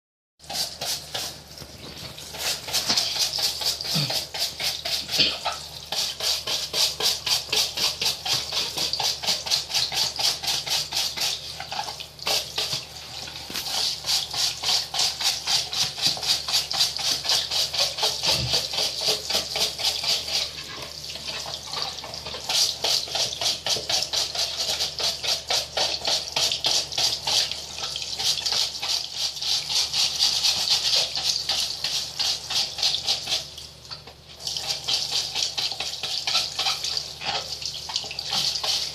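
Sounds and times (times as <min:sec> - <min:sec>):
rapid rasping scrubbing: 0:02.2 - 0:12.8, 0:13.4 - 0:20.8.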